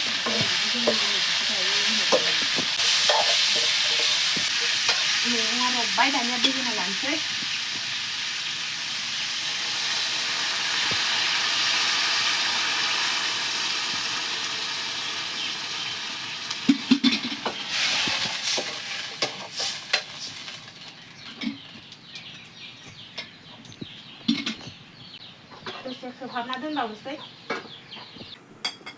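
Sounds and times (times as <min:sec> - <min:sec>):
utensil scraping a pan: 0:00.0 - 0:05.5, 0:17.1 - 0:20.5
food sizzling in a pan: 0:00.0 - 0:21.1.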